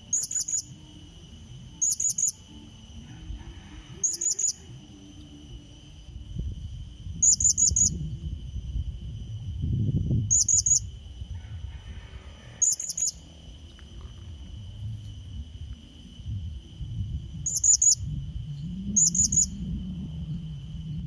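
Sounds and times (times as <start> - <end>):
steady high drone: 0.0 - 21.0
low rumble: 4.7 - 12.6, 13.2 - 21.0.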